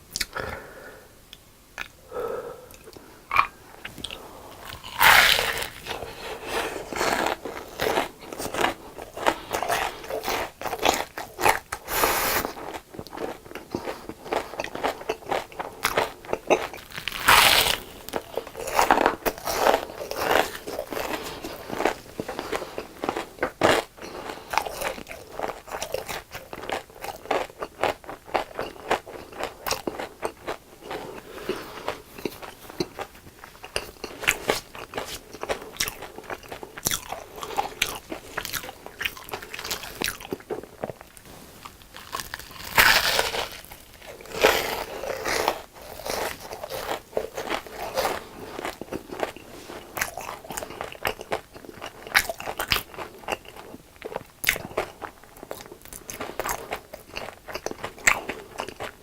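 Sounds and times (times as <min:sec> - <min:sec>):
person chewing crunchy food: 0:01.8 - 0:59.0
loud crunching bites: 0:04.6 - 0:06.0, 0:42.0 - 0:43.7.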